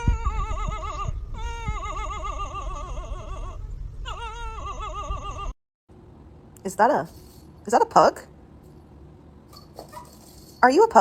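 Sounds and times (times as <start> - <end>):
pet animal warbling cries: 0.0 - 5.6.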